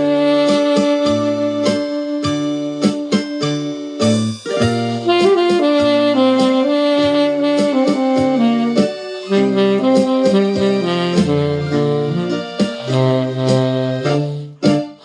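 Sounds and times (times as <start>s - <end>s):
steady drum beat: 0.0s - 2.0s, 4.9s - 13.9s
bass line: 0.0s - 14.8s
saxophone melody: 0.0s - 15.0s.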